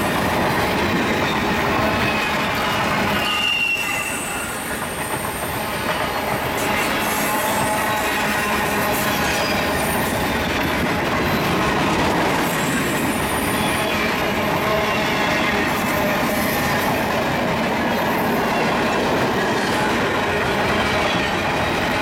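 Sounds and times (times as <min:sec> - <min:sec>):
freight train rumbling on rails: 0:00.0 - 0:22.0
high wheel squeals: 0:01.1 - 0:10.4.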